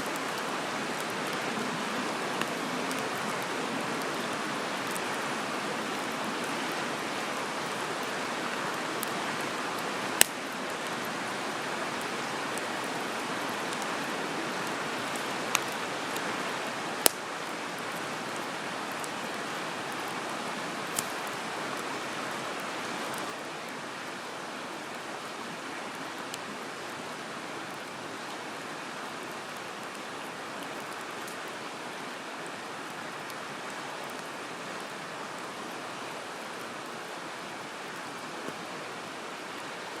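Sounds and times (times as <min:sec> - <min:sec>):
flowing water rushing: 0:00.0 - 0:40.0
campfire wood popping: 0:10.1 - 0:10.9, 0:16.9 - 0:17.3, 0:20.8 - 0:21.4.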